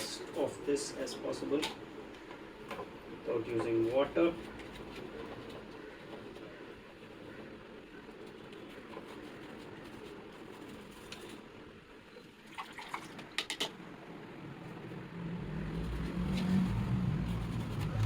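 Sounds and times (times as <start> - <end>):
low engine rumble: 13.8 - 18.0
dry brush scrubbing: 15.5 - 18.0.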